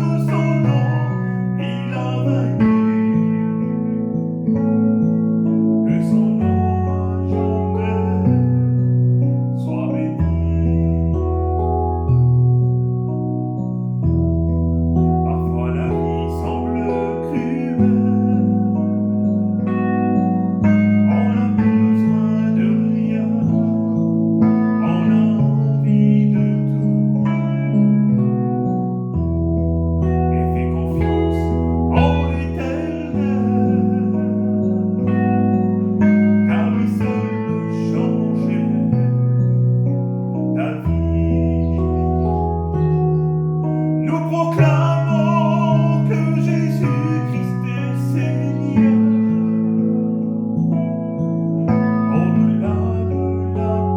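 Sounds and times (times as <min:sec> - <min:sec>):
man singing a hymn: 0:00.0 - 0:03.7, 0:05.8 - 0:08.7, 0:09.5 - 0:11.4, 0:15.1 - 0:19.0, 0:20.7 - 0:27.1, 0:30.1 - 0:35.4, 0:36.0 - 0:39.4, 0:40.3 - 0:43.0, 0:43.7 - 0:49.7, 0:52.1 - 0:53.9
instrumental accompaniment: 0:11.0 - 0:52.9.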